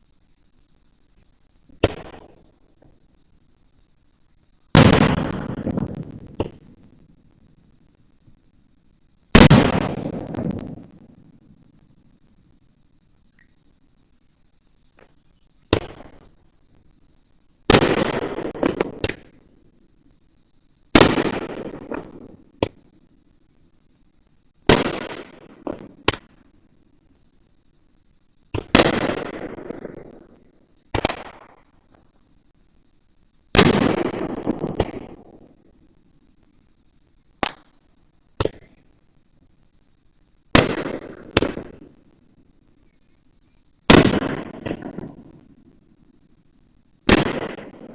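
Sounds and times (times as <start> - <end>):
firework shells bursting: 4.8 - 6.8, 30.9 - 31.7, 37.4 - 37.8
small firework cracks: 4.8 - 6.8, 9.4 - 10.8, 17.7 - 19.4, 21.0 - 22.9, 24.7 - 26.5, 28.5 - 32.0, 33.5 - 35.7, 37.4 - 37.8, 40.5 - 42.0, 43.9 - 45.5, 47.1 - 47.9.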